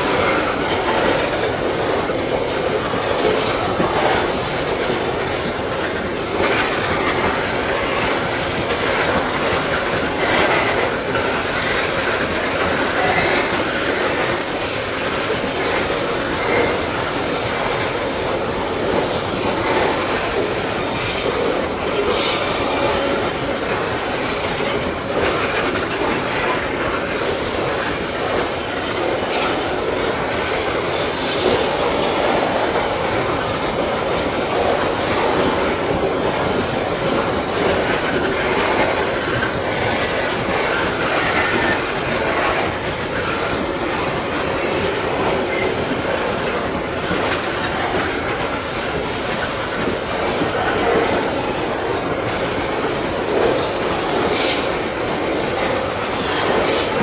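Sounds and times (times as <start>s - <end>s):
train wheels rumbling on rail: 0.0s - 57.0s
high wheel squeals: 30.8s - 32.9s, 53.7s - 55.7s.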